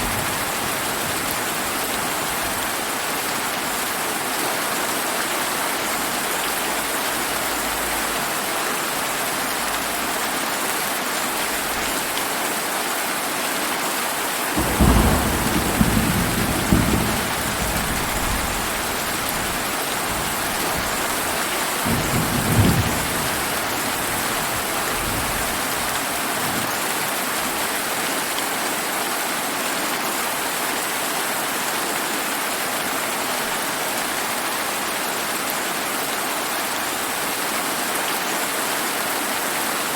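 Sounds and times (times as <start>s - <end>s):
steady rain: 0.0s - 39.9s
thunder rumbling: 14.6s - 21.2s, 21.8s - 25.4s.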